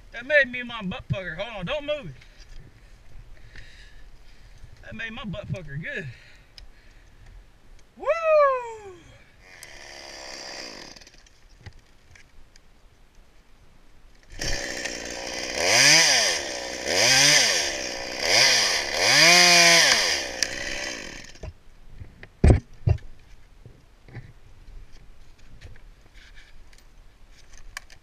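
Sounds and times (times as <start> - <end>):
chainsaw engine revving: 9.4 - 11.2, 14.3 - 21.5.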